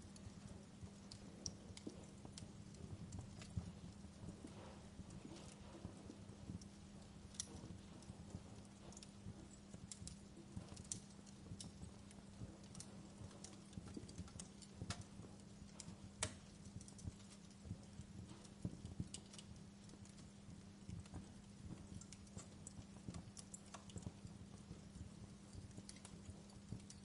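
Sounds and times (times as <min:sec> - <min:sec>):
steady low hum: 0:00.0 - 0:27.0
wood fire crackling and popping: 0:00.0 - 0:27.0.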